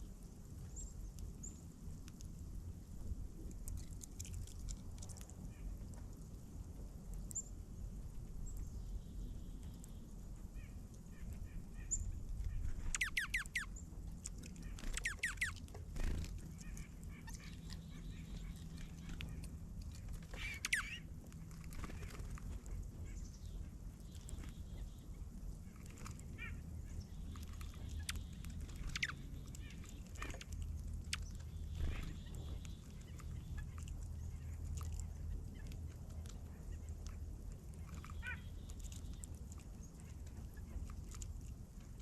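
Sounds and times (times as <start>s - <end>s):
steady low rumble: 0.0s - 42.0s
birds chirping: 8.4s - 41.3s.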